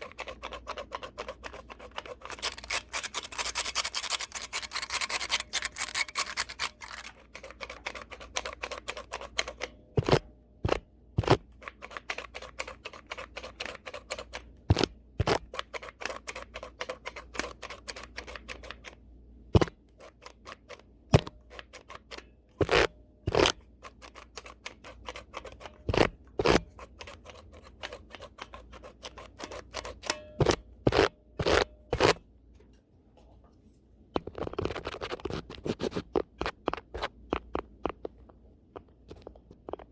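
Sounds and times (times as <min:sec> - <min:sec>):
brush bristles scratching lens: 0:00.0 - 0:09.5.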